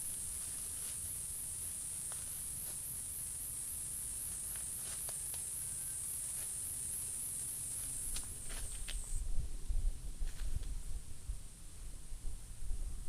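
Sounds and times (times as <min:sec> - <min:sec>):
insects chirping: 0:00.0 - 0:09.2.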